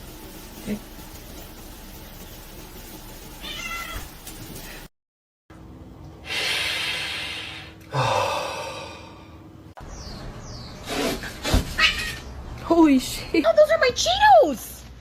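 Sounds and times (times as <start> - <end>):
cat meowing: 3.4 - 4.1.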